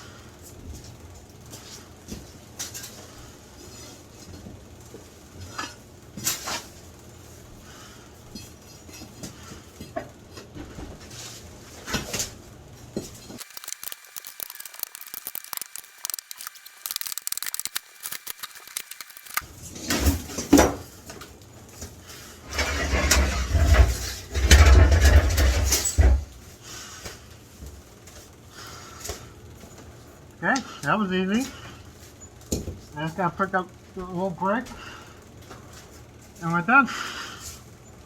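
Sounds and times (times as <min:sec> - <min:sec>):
shovel scraping concrete floor: 0:22.4 - 0:26.2.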